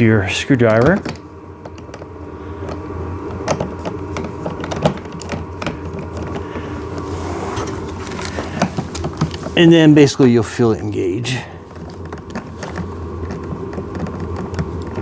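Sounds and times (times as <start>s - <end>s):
steady low hum: 0.0s - 15.0s
small clicks and scrapes: 11.7s - 15.0s.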